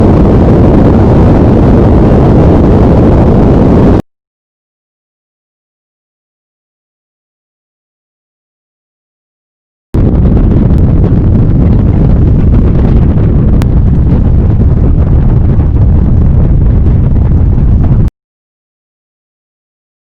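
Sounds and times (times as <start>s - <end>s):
wind buffeting microphone: 0.0s - 4.0s, 10.0s - 18.1s.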